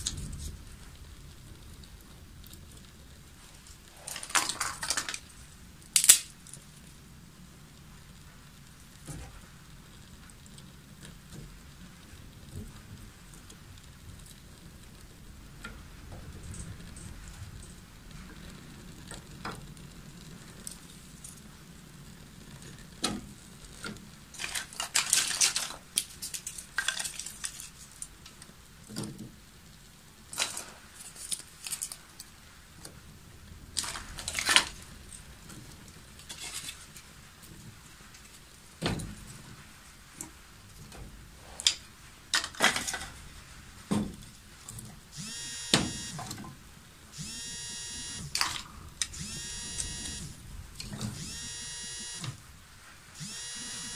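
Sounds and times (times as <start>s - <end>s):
clatter of hard objects: 1.6s - 6.8s, 22.5s - 29.4s, 30.3s - 33.0s, 33.7s - 44.9s.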